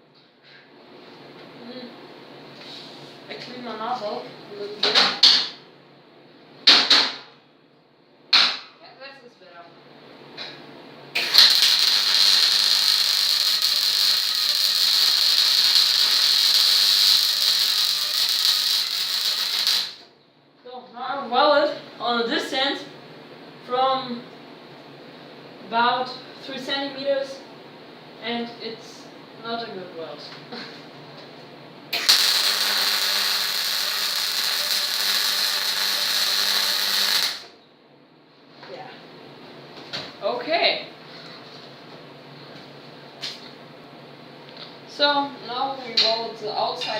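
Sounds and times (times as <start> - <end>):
welder arc crackling sizzle: 11.2 - 20.1, 31.9 - 37.6.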